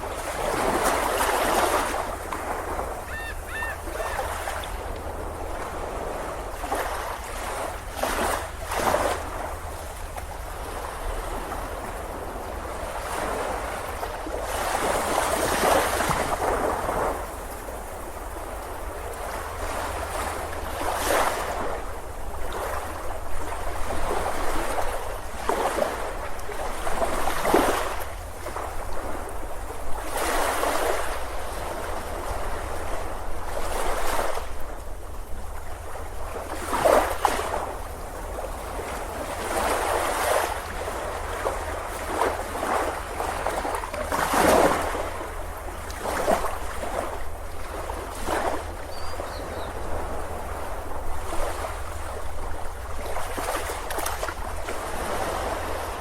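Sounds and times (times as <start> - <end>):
ocean waves breaking on beach: 0.0 - 56.0.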